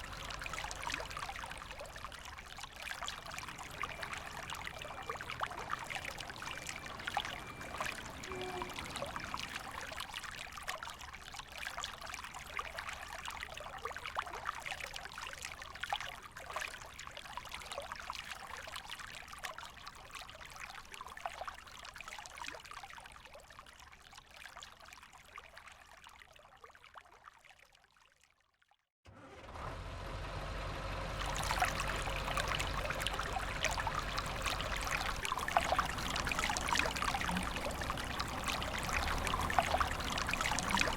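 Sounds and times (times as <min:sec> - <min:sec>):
river water flowing: 0:00.0 - 0:13.7, 0:30.0 - 0:40.9.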